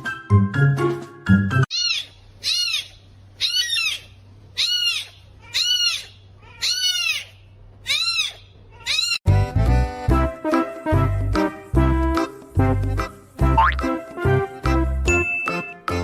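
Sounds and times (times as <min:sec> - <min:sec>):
animal crying: 0:01.7 - 0:09.2.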